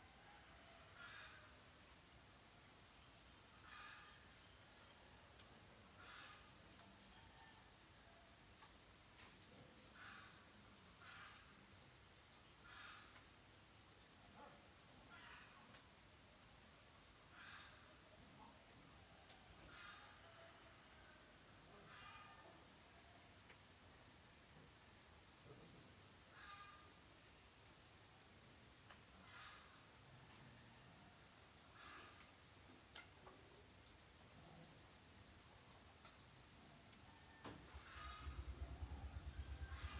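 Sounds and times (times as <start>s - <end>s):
high insect hum: 20.9s - 39.9s
crickets trilling: 29.2s - 39.9s.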